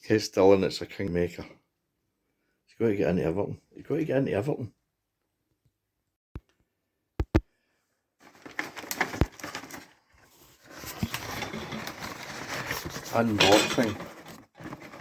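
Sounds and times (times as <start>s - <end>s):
objects rustling and clattering: 8.2s - 15.0s.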